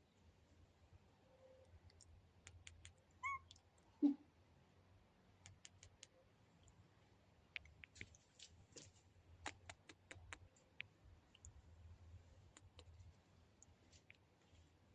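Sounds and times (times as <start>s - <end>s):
low steady hum: 0.0s - 14.9s
faint irregular clicks and taps: 1.8s - 3.9s, 7.5s - 11.6s, 12.5s - 14.6s.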